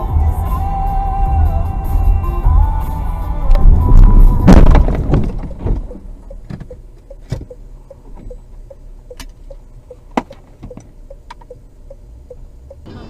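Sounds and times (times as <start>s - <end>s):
loud noise: 0.6s - 5.4s
sharp knocks: 4.5s - 7.5s
car dashboard ticking: 4.5s - 12.9s.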